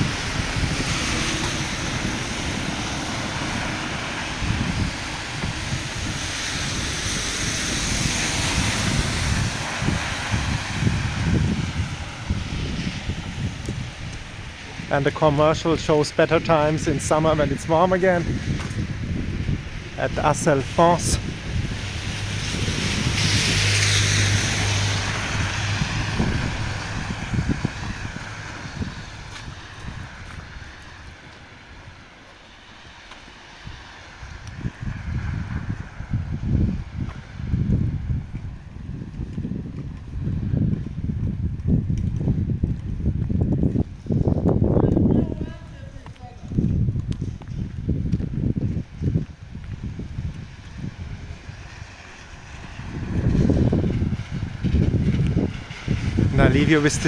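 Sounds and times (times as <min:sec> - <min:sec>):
car engine hum: 0:00.0 - 0:30.9
rain on wet street: 0:00.0 - 0:57.0
wind buffeting microphone: 0:00.0 - 0:57.0.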